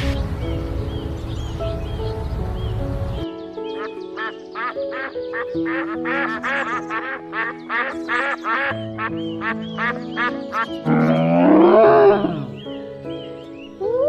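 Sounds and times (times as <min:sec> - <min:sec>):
background music with held notes: 0:00.0 - 0:14.0
duck quacking: 0:04.2 - 0:11.2.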